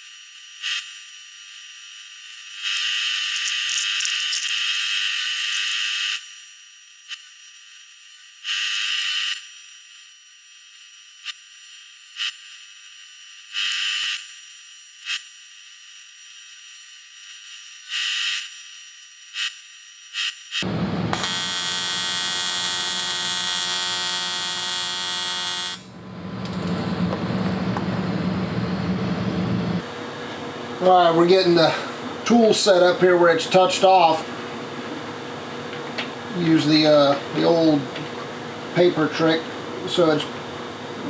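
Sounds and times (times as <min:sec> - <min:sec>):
welding arc buzzing: 0:00.0 - 0:06.3, 0:07.1 - 0:29.9
machine whining and humming: 0:20.6 - 0:32.2.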